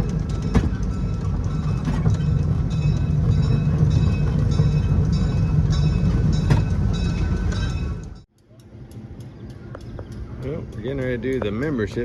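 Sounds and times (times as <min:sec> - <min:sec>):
train rumbling by: 0:00.0 - 0:12.0.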